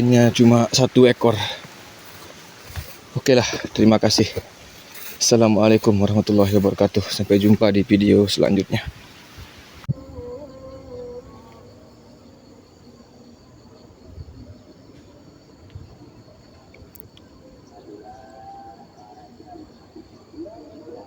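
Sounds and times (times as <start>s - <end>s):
insects droning: 0.0s - 21.0s
wind rumble on microphone: 14.0s - 17.8s.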